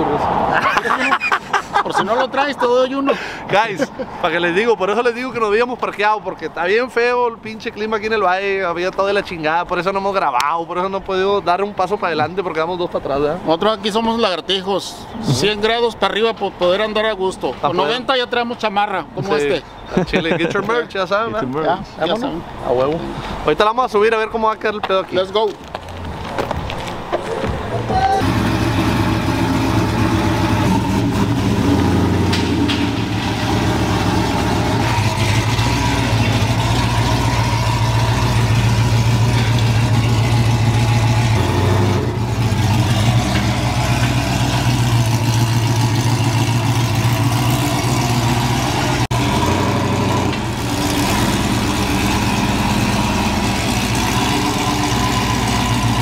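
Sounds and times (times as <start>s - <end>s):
pickup truck engine idling: 28.2s - 49.6s.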